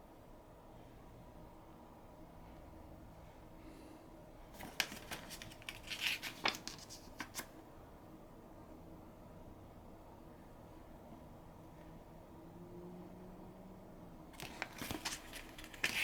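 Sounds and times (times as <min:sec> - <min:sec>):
paper pages rustling: 0:04.6 - 0:07.5, 0:14.4 - 0:16.0.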